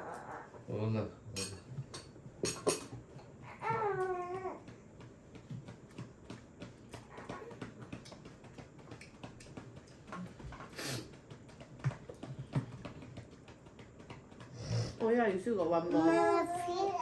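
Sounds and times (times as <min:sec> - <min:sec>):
child eating at a table: 0:00.0 - 0:04.7
child's voice: 0:15.8 - 0:17.0.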